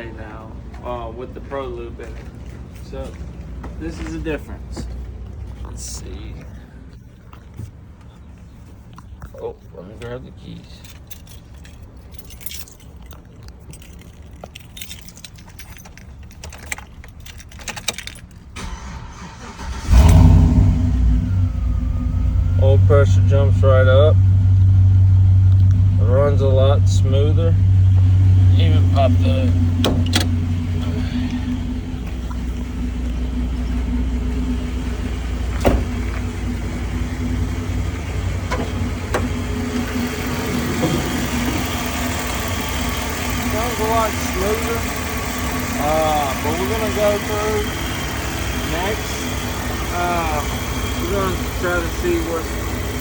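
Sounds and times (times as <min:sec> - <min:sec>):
truck engine starting and running: 0:10.0 - 0:53.0
keys jangling: 0:10.7 - 0:18.6.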